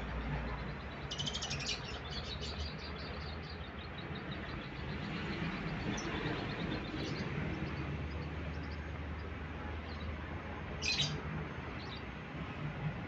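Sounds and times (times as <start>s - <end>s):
lovebird chirping: 1.0s - 3.4s.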